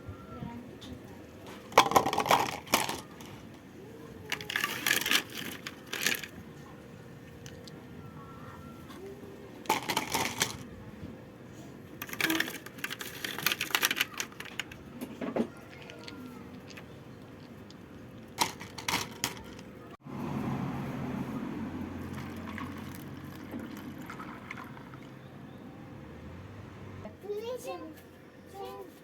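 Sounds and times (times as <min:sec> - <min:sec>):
small hard objects clattering: 0:01.6 - 0:03.4, 0:04.2 - 0:06.4, 0:09.6 - 0:10.6, 0:12.0 - 0:19.8.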